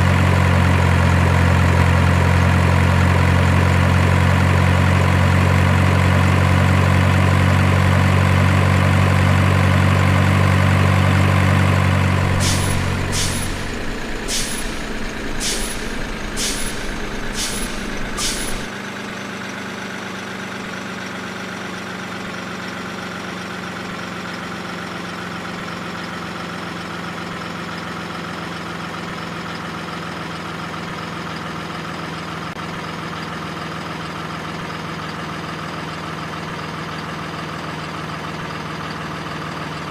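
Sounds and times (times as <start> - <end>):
heavy truck engine running: 0.0 - 39.9
short sharp hisses: 12.3 - 18.7.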